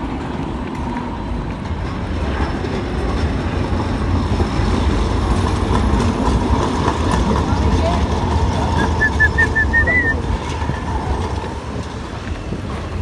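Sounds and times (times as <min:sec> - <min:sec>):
rail vehicle rumbling: 0:00.0 - 0:13.0.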